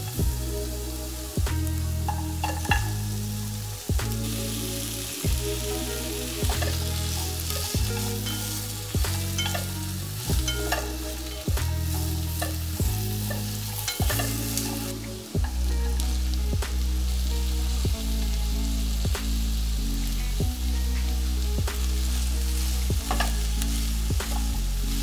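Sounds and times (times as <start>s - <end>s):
music with deep bass and beat: 0.0s - 25.0s
vegetables sizzling in oil: 0.0s - 25.0s
chopsticks stirring in pot: 2.0s - 3.0s, 4.3s - 16.0s, 23.0s - 25.0s.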